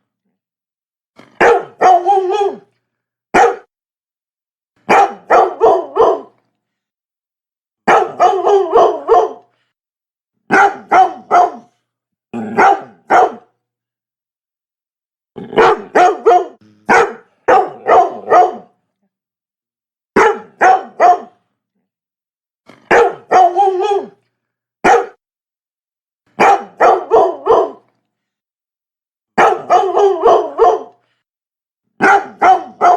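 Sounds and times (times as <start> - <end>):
dog barking: 1.4 - 2.7, 3.4 - 3.7, 4.8 - 6.4, 7.8 - 9.5, 10.5 - 11.8, 12.4 - 13.5, 15.5 - 18.8, 20.2 - 21.4, 22.8 - 24.2, 24.8 - 25.2, 26.4 - 27.9, 29.4 - 31.0, 32.0 - 32.9.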